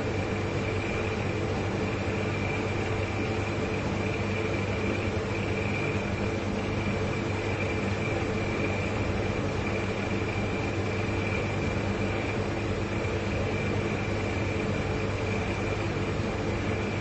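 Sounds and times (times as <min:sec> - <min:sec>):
faint high whine: 0:00.0 - 0:17.0
refrigerator compressors humming: 0:00.0 - 0:17.0.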